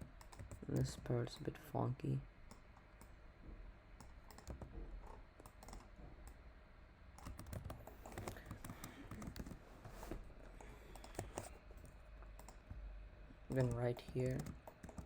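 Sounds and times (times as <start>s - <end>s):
faint computer keyboard tapping: 0.1s - 1.6s, 4.0s - 6.4s, 7.2s - 15.0s.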